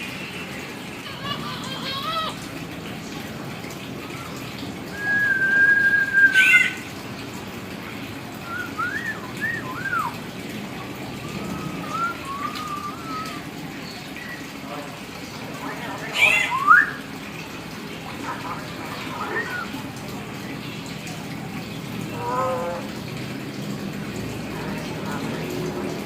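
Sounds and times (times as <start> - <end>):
myna whistling: 4.9 - 6.5, 8.4 - 10.1, 11.3 - 13.4.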